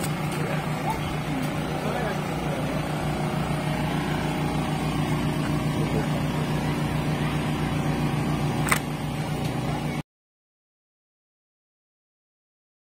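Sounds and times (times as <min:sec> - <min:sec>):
motor humming: 0:00.0 - 0:10.0
sharp click: 0:08.6 - 0:09.6.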